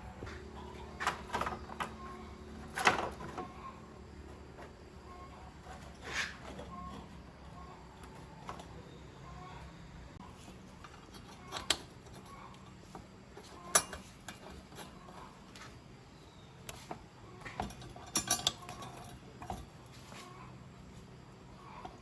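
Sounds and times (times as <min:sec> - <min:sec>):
metal tools clinking: 0:13.4 - 0:15.2, 0:17.4 - 0:19.7.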